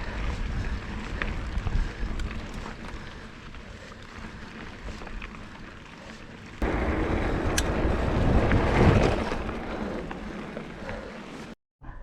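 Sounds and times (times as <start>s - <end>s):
wind buffeting microphone: 0.0s - 3.1s, 6.6s - 10.8s
bike tyres rumbling on dirt: 0.0s - 11.6s.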